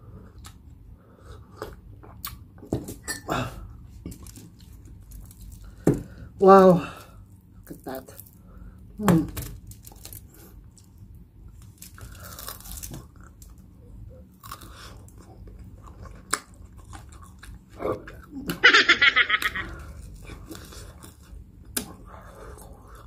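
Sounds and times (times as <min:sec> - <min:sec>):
person chewing: 0:09.8 - 0:18.7, 0:19.3 - 0:23.0.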